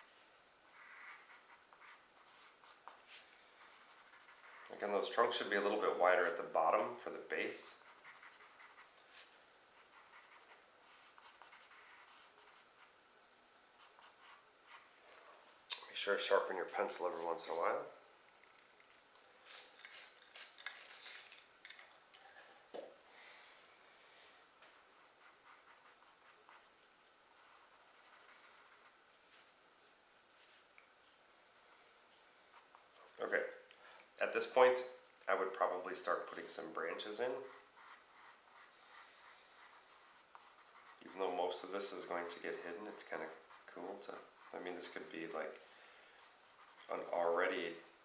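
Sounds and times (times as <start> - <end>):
pencil scratching on paper: 0.7 - 3.0, 3.6 - 6.4, 7.7 - 8.9, 9.8 - 12.9, 13.8 - 14.9, 24.7 - 26.7, 27.4 - 29.0, 36.8 - 45.4, 46.2 - 47.9.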